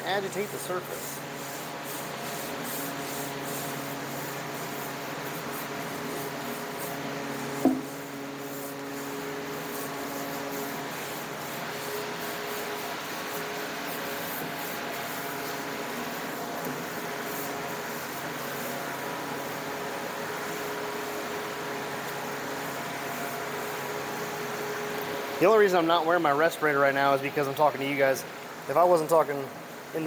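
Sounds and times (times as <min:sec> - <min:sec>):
hand scrubbing metal pipe: 0:00.1 - 0:18.8
sharp knock: 0:07.6 - 0:07.9.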